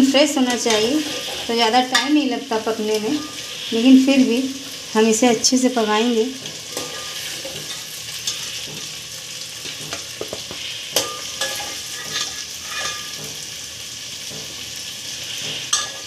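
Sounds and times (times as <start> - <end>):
meat sizzling in oil: 0.0 - 16.0
metal ladle scraping a pan: 0.3 - 3.9, 6.4 - 9.0, 9.6 - 13.6, 15.2 - 16.0.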